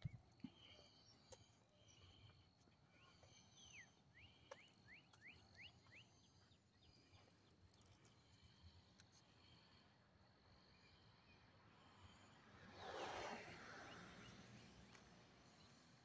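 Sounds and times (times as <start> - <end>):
bird whistling song: 3.6 - 6.2.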